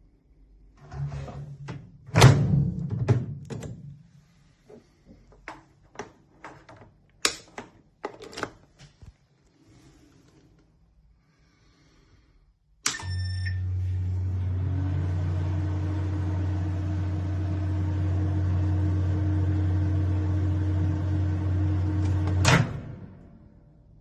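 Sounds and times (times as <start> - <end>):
microwave beep: 12.9 - 14.0
microwave humming: 13.0 - 23.8
microwave fan spinning up: 13.2 - 23.5.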